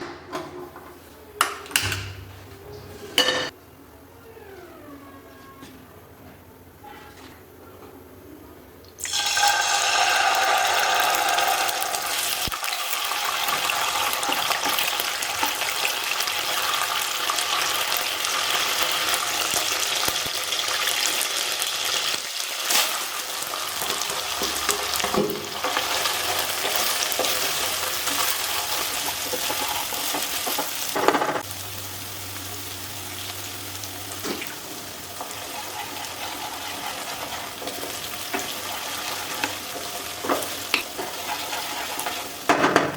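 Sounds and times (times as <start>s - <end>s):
food sizzling in oil: 9.0s - 42.9s.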